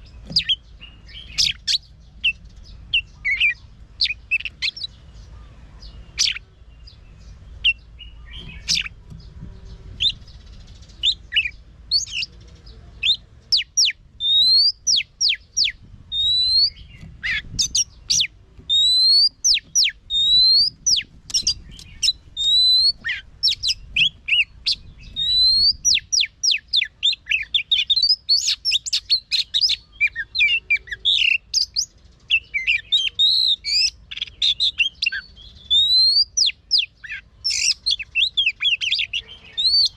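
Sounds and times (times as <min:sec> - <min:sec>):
bird singing whistled song: 0:00.0 - 0:12.4, 0:13.0 - 0:39.9.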